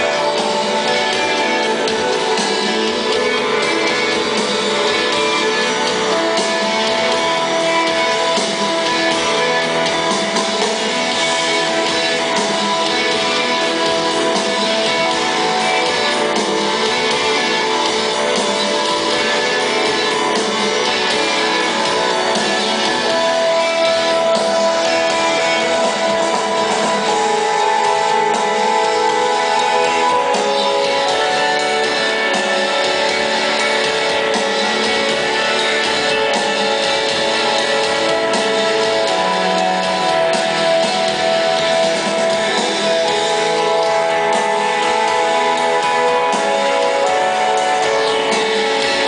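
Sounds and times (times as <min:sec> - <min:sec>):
instrumental post-rock band: 0:00.0 - 0:49.0.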